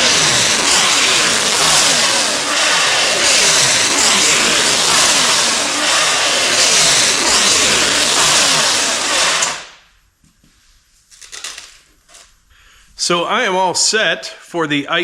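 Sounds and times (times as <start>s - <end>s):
engine running loud: 0.0s - 9.8s.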